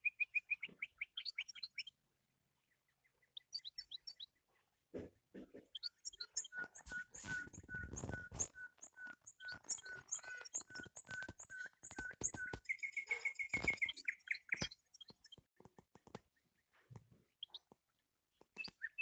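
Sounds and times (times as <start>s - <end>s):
bird trill: 0.0s - 2.0s, 3.0s - 4.4s, 5.7s - 15.5s, 17.4s - 17.7s, 18.5s - 19.0s
bird piping notes: 5.7s - 15.5s
high chirps: 5.8s - 15.4s.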